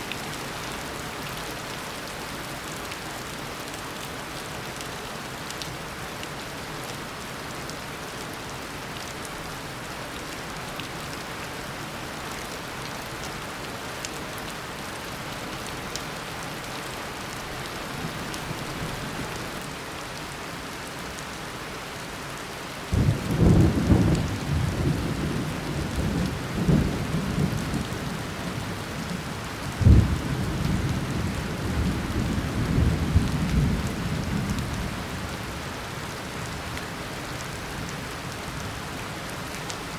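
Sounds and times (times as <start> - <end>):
heavy rain pouring: 0.0 - 39.9
thunder rumbling and cracking: 22.9 - 28.6, 29.8 - 34.7.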